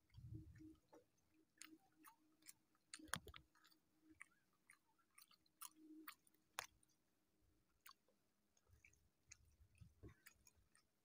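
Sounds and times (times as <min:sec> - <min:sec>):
moist chewing: 0:00.0 - 0:11.0
wet mouth clicks and smacks: 0:01.6 - 0:07.0, 0:07.8 - 0:08.0, 0:08.6 - 0:10.9.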